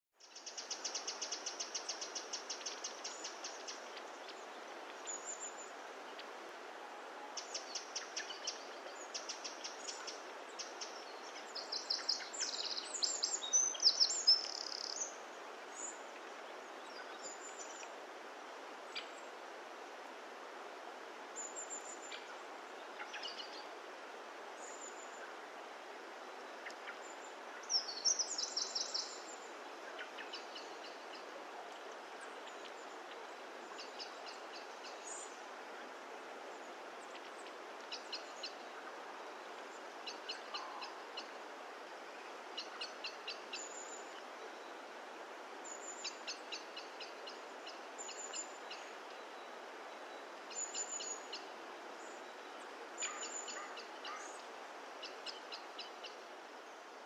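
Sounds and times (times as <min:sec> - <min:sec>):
steady background hiss: 0:00.2 - 0:57.0
birds chirping and trilling: 0:53.0 - 0:54.4.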